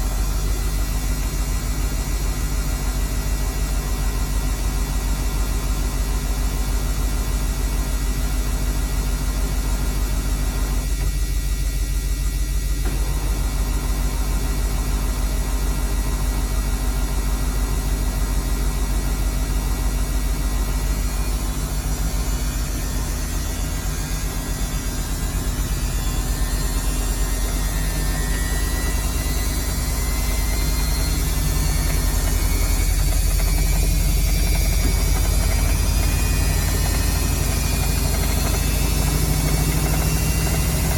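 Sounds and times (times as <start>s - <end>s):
washing machine spinning: 0.0s - 40.9s.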